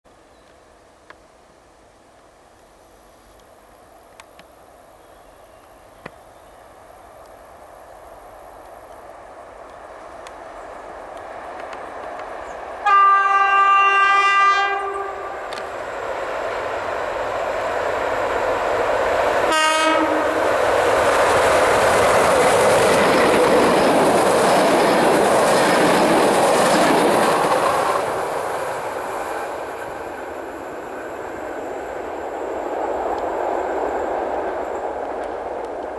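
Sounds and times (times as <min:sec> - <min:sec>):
passenger train passing on rails: 0:00.2 - 0:35.9
locomotive horn blasts: 0:12.8 - 0:15.5, 0:19.4 - 0:20.4.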